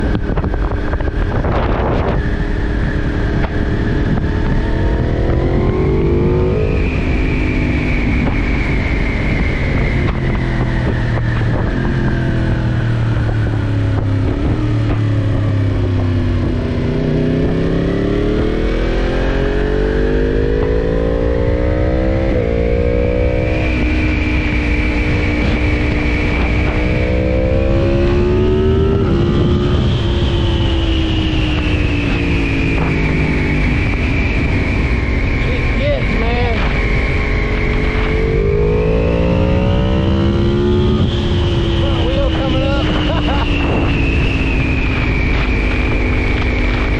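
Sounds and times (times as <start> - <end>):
motorcycle engine revving: 0.0 - 46.9
rushing noise: 22.3 - 46.9.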